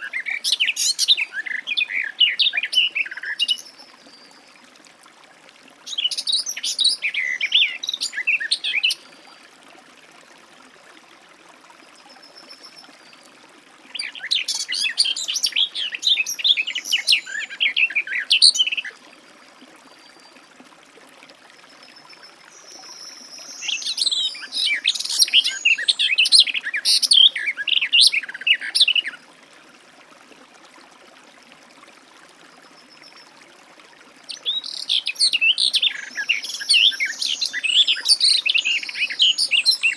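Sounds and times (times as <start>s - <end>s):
warbler singing: 34.3s - 39.9s.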